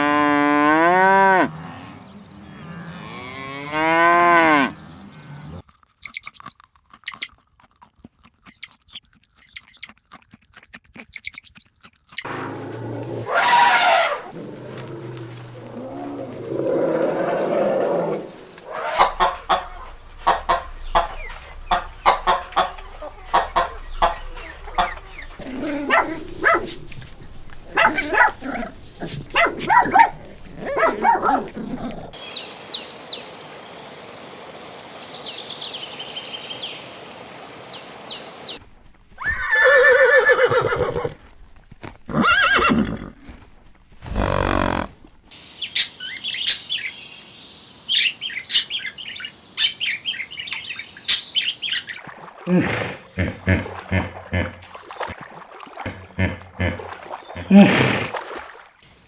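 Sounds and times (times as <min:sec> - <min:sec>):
cow mooing: 0:00.0 - 0:05.6, 0:14.2 - 0:18.3, 0:44.1 - 0:45.0
chewing crunches: 0:05.6 - 0:12.3.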